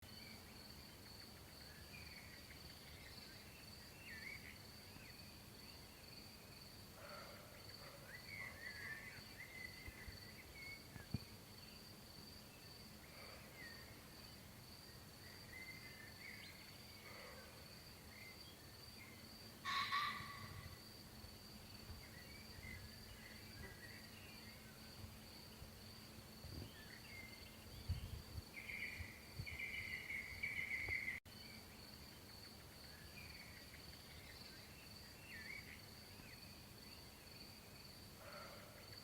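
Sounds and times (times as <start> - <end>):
insect trill: 0.1 - 39.0
bird chirps: 26.6 - 31.2.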